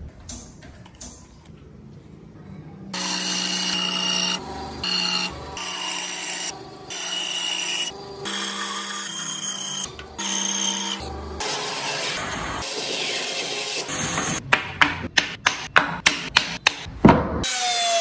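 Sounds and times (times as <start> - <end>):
electric power tool cutting wood: 3.0 - 14.4.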